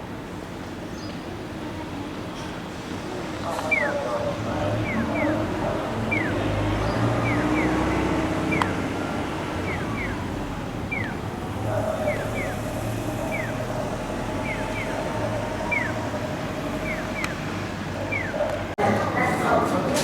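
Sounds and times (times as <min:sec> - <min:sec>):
electronic bird chirps: 0:03.7 - 0:04.0, 0:04.6 - 0:10.3, 0:10.9 - 0:11.3, 0:12.0 - 0:16.0, 0:16.8 - 0:17.5, 0:18.1 - 0:18.4.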